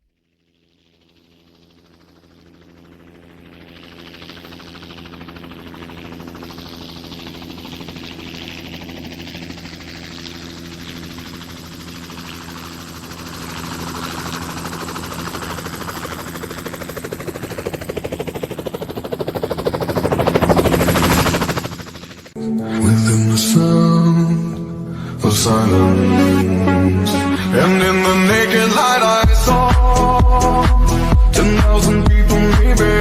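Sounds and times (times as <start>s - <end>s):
helicopter engine whine: 0.2s - 33.0s
rotor blade chop: 3.8s - 22.4s.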